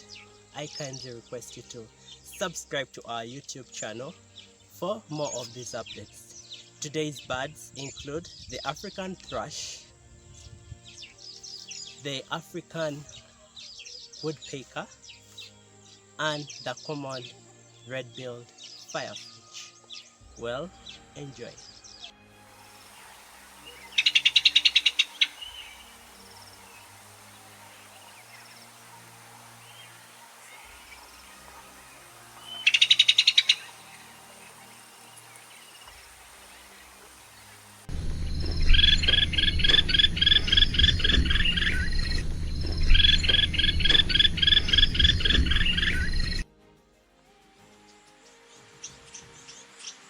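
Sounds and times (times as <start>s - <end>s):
bird calling rapid sharp notes: 23.8s - 26.0s, 32.4s - 34.0s, 37.9s - 46.4s.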